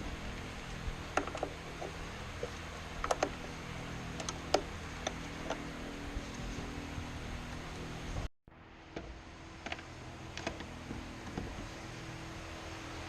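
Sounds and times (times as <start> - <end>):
steady low hum: 0.0 - 13.0
sharp mechanical clicks: 3.0 - 3.4, 4.1 - 5.6.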